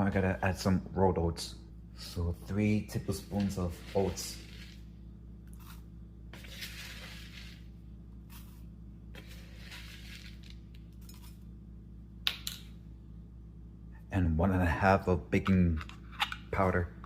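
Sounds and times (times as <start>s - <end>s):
steady low hum: 0.0s - 17.0s
oats rustling as poured: 3.1s - 4.9s, 5.6s - 11.3s.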